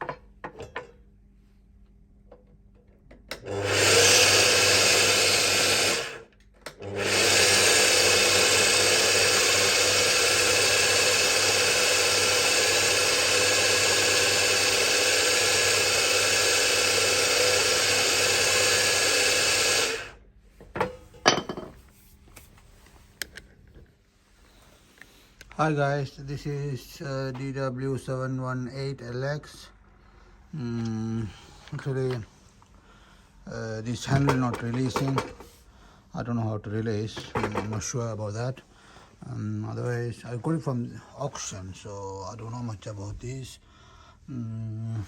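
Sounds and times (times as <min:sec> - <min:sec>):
mitre saw motor running: 0:03.4 - 0:20.2.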